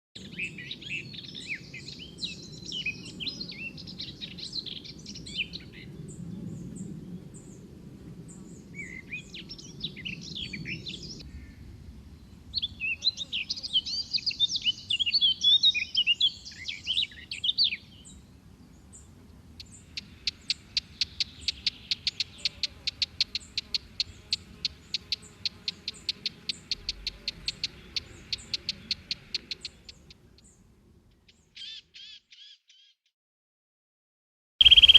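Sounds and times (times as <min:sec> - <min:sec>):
songbirds chirping: 0:00.2 - 0:33.0, 0:34.6 - 0:34.9
bird repeating short note: 0:34.6 - 0:34.9.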